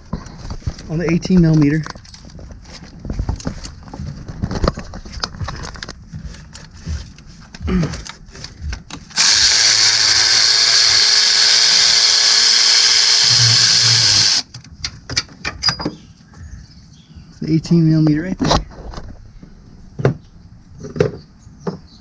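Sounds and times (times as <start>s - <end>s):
cordless power tool running: 9.1s - 14.5s.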